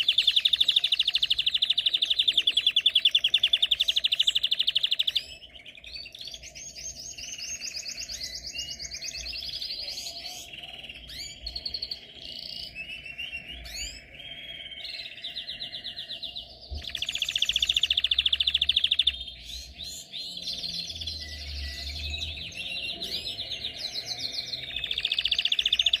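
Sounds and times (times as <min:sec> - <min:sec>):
canary singing trills: 0:00.0 - 0:26.0.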